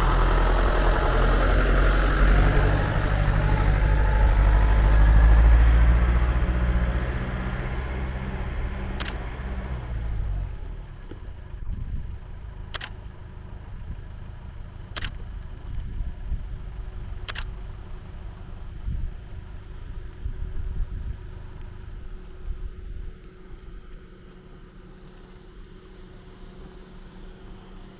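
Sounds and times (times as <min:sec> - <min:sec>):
vehicle engine running: 0:00.0 - 0:27.9
sharp clicks: 0:08.2 - 0:09.4, 0:12.7 - 0:13.1, 0:14.9 - 0:15.9, 0:17.2 - 0:17.9.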